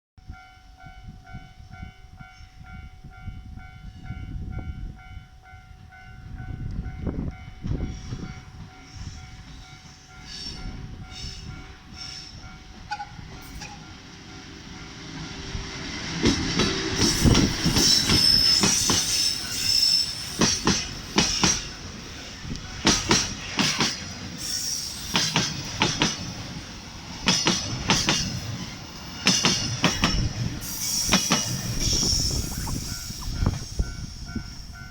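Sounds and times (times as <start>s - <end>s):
freight train rolling past: 0.3s - 34.9s
train wheels squealing: 7.8s - 13.9s, 16.5s - 26.1s, 27.9s - 34.9s
wagons clacking over rail joints: 16.1s - 33.7s.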